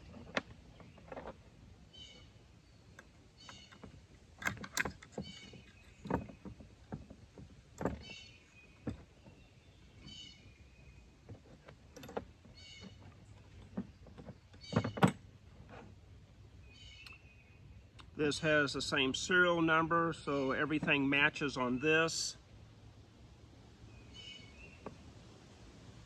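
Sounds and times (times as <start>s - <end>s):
knocks and clicks of rifle parts: 3.0s - 8.2s.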